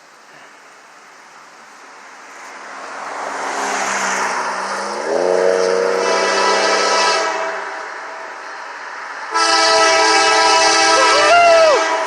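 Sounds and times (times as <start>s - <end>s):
diesel locomotives approaching: 1.6s - 12.0s
train horn chord: 5.0s - 7.9s, 9.3s - 12.0s.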